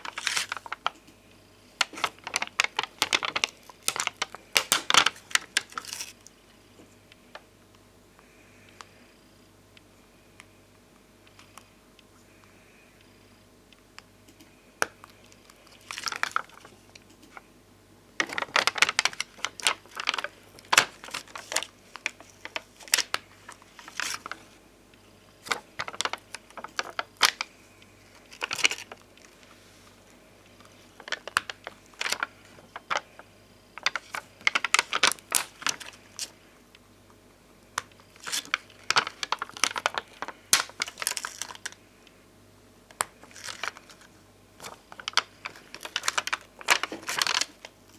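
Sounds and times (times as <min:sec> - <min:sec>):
stickers crinkling: 0:00.0 - 0:01.0, 0:01.7 - 0:06.3, 0:14.8 - 0:17.4, 0:18.2 - 0:24.6, 0:25.3 - 0:29.8, 0:30.5 - 0:36.5, 0:37.7 - 0:41.8, 0:42.9 - 0:47.9
stickers tapping and clicking: 0:01.8 - 0:06.0, 0:18.2 - 0:24.4, 0:37.8 - 0:41.8, 0:44.6 - 0:47.8.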